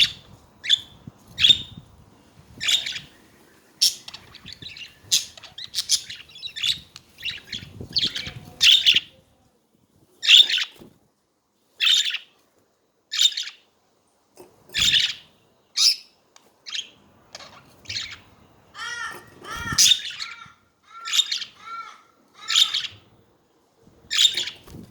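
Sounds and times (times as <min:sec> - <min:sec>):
budgerigars chirping: 0:02.6 - 0:03.2, 0:03.8 - 0:09.1, 0:10.2 - 0:10.7, 0:14.8 - 0:16.1, 0:16.7 - 0:20.4, 0:21.1 - 0:21.6, 0:22.4 - 0:23.0, 0:24.1 - 0:24.6.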